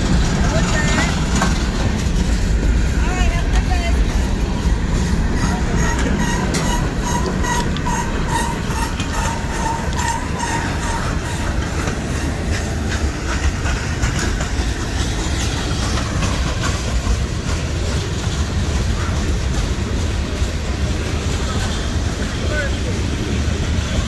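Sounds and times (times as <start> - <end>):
train wheels rumbling on rails: 0.0 - 24.0
wheels clicking over rail joints: 0.0 - 24.0
grade-crossing bell dinging: 5.1 - 11.9.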